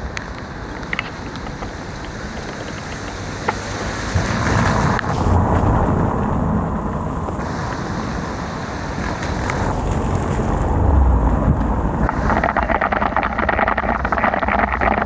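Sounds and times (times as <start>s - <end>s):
dense rapid crackle: 0.0s - 7.8s, 12.0s - 15.0s
heavy rain: 0.0s - 15.0s
low traffic rumble: 0.0s - 15.0s
wind rushing over microphone: 0.0s - 15.0s.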